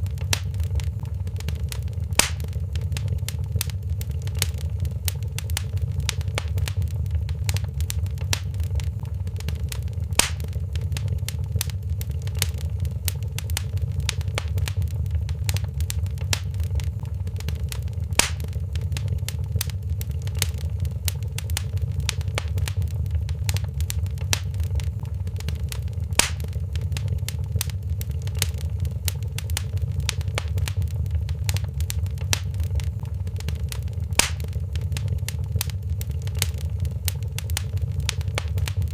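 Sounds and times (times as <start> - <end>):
loud fire pop: 0.0 - 3.5, 5.4 - 11.7, 12.4 - 19.7, 26.0 - 27.7, 28.4 - 35.7
fire crackling clicks: 0.0 - 38.9
low fire rumble: 0.0 - 38.9.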